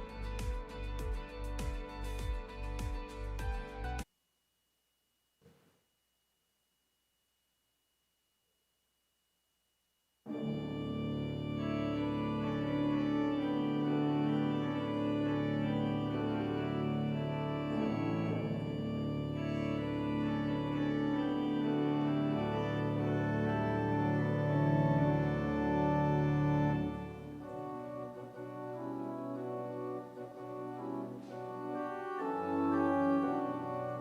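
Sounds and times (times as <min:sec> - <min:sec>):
organ playing sustained chords: 0:10.3 - 0:34.0.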